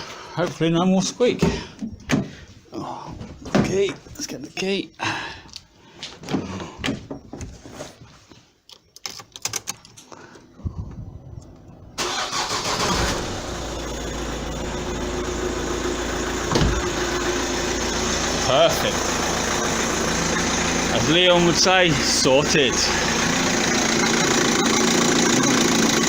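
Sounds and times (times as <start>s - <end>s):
diesel engine starting and idling: 11.6s - 26.0s.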